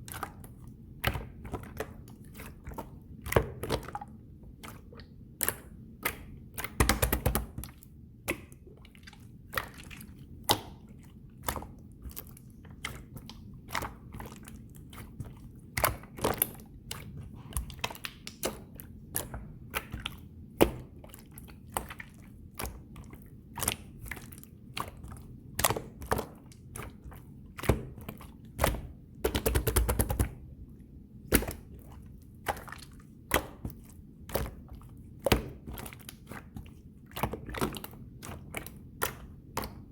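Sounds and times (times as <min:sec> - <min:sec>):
slime clicking and popping: 0:05.3 - 0:07.7, 0:28.6 - 0:30.4.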